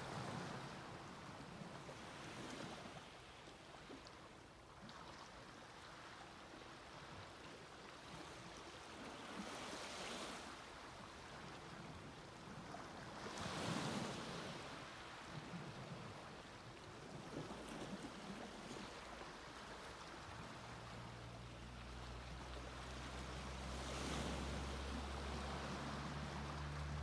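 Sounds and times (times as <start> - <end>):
waves washing on sandy beach: 8.5 - 21.1, 21.8 - 27.0
waves breaking: 12.6 - 27.0.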